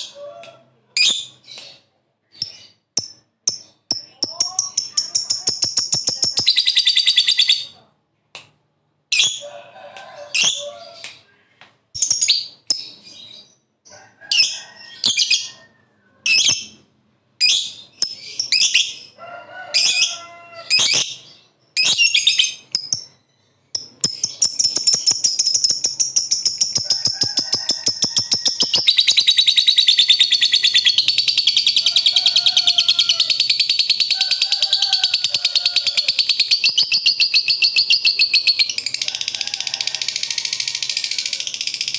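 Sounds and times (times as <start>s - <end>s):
lovebird chattering trill: 2.4s - 7.7s, 23.8s - 39.0s.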